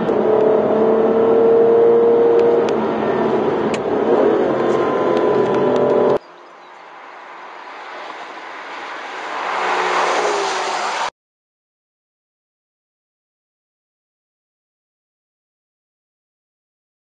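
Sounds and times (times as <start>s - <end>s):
car approaching: 0.0s - 11.1s
car engine cruising: 0.0s - 11.1s.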